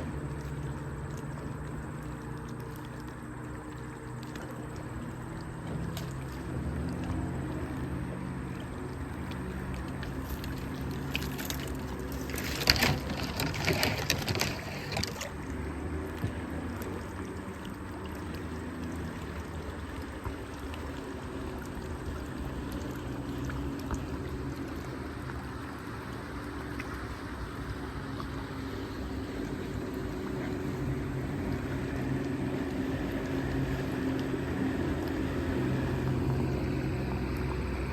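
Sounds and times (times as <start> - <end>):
low steady hum: 0.0 - 37.9
river water splashing and trickling: 0.0 - 37.9.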